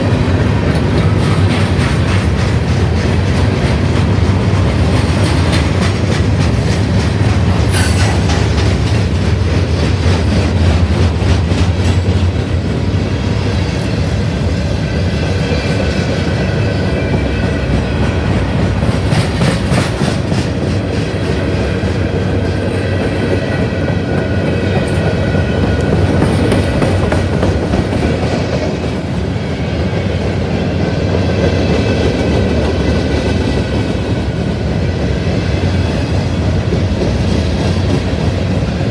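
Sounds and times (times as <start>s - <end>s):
wheels clicking over rail joints: 0.0s - 13.0s
train rumbling past: 0.0s - 38.9s.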